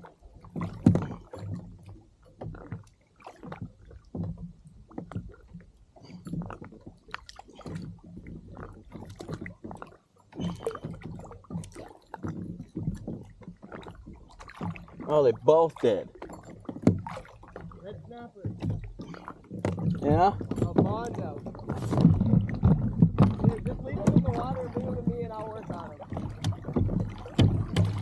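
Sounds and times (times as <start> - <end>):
water sloshing against hull: 0.0 - 28.0
knocks on hull: 0.5 - 2.8, 10.3 - 28.0.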